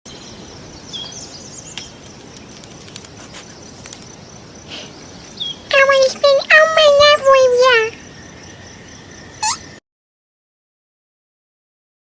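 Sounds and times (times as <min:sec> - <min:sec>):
high-pitched insect trill: 0:00.2 - 0:09.8
short bird chirps: 0:09.4 - 0:09.8.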